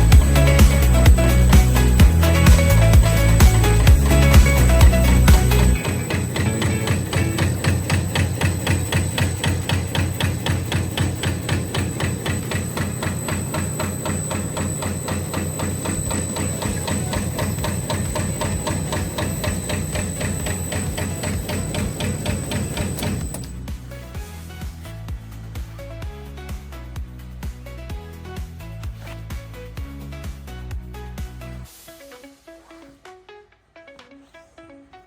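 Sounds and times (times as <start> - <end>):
cutting machine stamping wood: 0.0 - 24.2.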